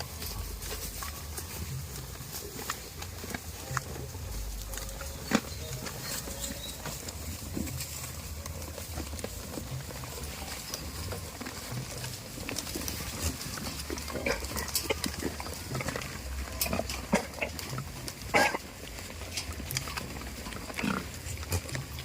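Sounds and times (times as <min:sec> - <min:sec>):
steady low rumble: 0:00.0 - 0:09.0
goats bleating: 0:03.2 - 0:22.0.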